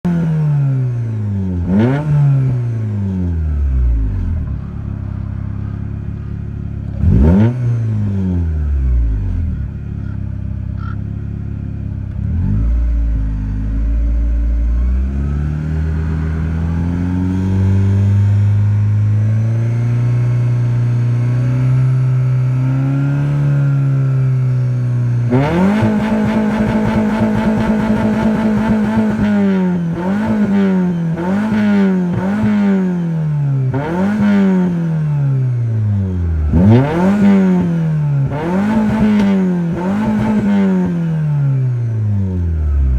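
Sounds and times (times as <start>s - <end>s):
car engine revving: 0.0s - 42.9s
engine stuttering on rev limiter: 25.3s - 32.7s.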